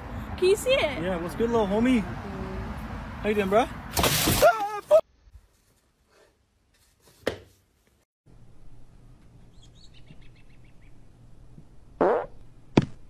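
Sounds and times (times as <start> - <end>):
faint outdoor noise: 0.0 - 13.0
high bird chirps: 9.5 - 11.0.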